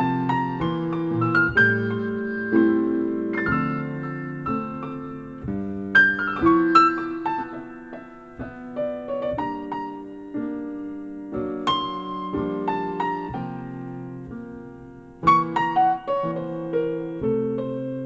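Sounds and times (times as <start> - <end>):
slow piano chords: 0.0 - 18.0.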